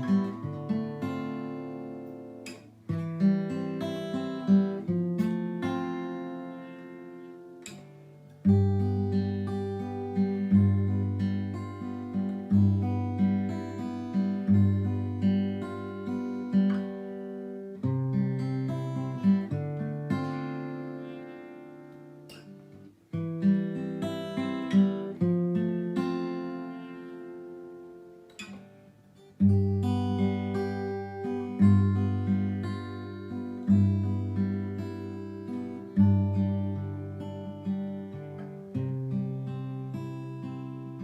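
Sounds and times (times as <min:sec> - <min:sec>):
acoustic guitar music: 0:00.0 - 0:41.0.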